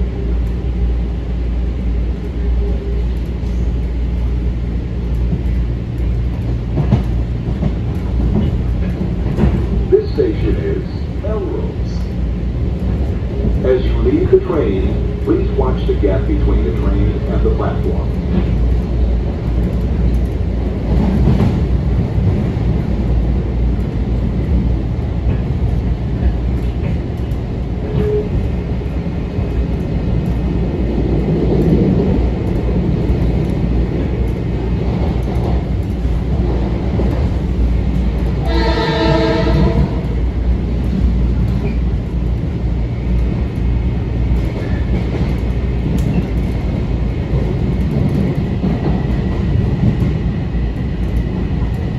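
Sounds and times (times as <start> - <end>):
electric train rumbling: 0.0 - 51.9
train horn: 38.4 - 40.0.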